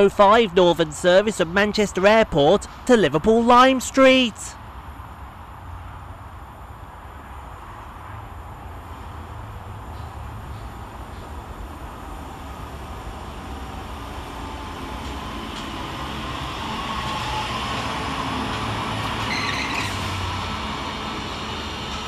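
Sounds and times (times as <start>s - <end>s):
electric train rumble: 0.0s - 22.0s
high squeal: 16.2s - 22.0s.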